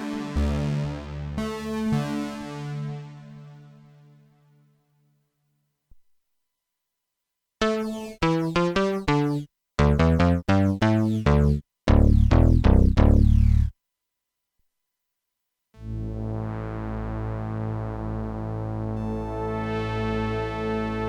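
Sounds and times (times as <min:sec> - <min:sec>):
synthesizer short notes: 0:07.6 - 0:13.7.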